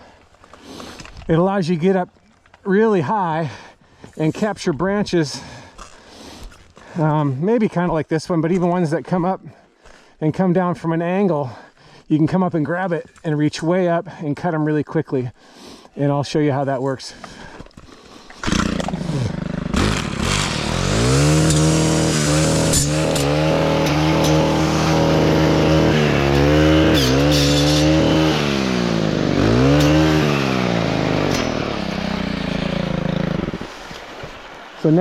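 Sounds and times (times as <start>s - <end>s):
circular saw engine revving: 18.4s - 33.7s.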